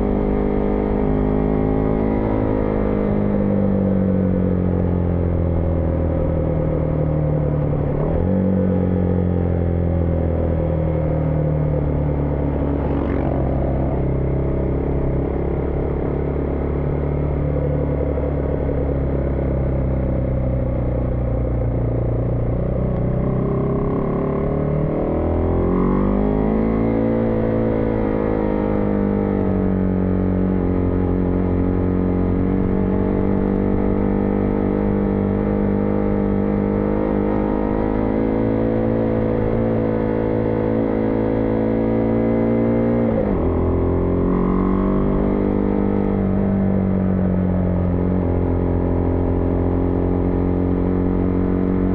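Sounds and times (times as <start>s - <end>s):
motorcycle engine: 0.0s - 51.9s.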